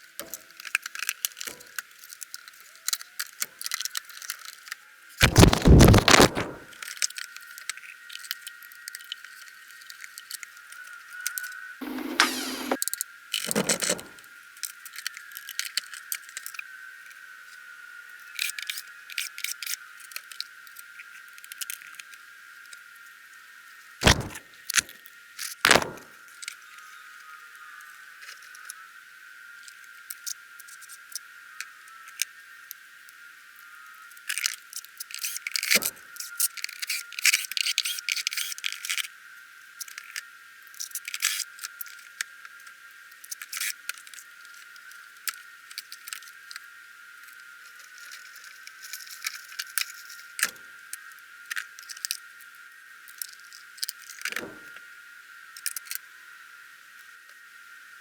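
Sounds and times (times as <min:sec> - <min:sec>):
sharp knocks: 0:24.0 - 0:24.4, 0:25.7 - 0:26.1.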